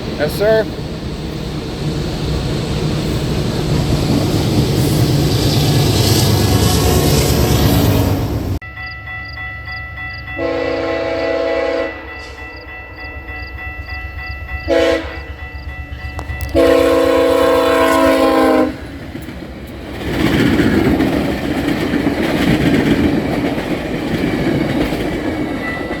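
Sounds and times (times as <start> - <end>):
rail cars clickety-clack: 0.0 - 8.6, 9.7 - 26.0
train rumbling past: 0.0 - 26.0
locomotive air horn blasts: 10.4 - 12.4, 14.7 - 15.3, 16.4 - 18.9.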